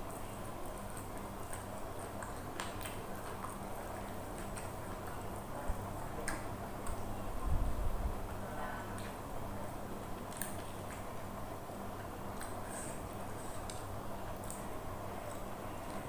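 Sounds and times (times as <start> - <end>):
low steady hum: 0.0 - 16.0
chewing clicks: 0.4 - 5.2.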